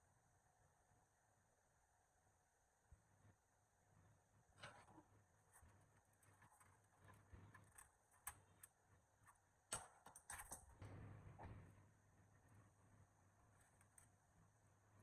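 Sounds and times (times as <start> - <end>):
faint clicks and light knocks: 13.6 - 14.2.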